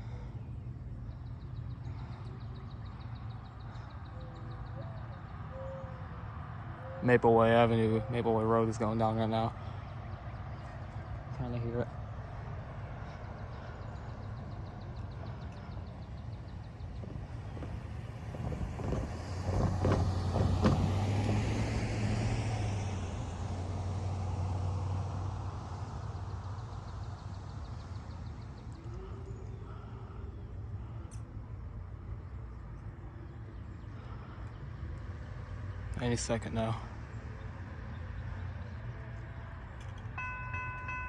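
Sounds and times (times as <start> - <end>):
vehicle passing: 0.0 - 41.0
distant railroad crossing bell: 39.8 - 41.0.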